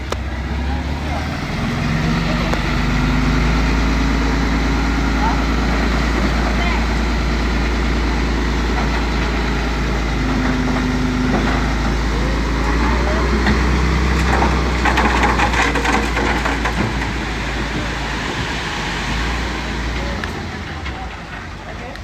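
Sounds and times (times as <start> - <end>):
heavy machinery engine drone: 0.0 - 22.0
metallic rattling and clanking: 4.8 - 18.1.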